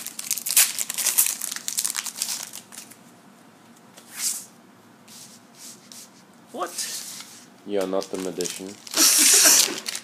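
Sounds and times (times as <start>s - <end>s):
wrappers crinkling and tearing: 0.0s - 3.0s, 7.8s - 10.0s.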